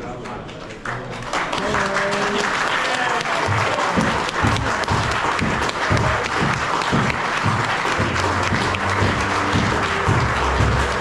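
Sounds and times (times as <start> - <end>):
crowd applauding: 0.1 - 11.0
music with steady beat: 4.0 - 11.0.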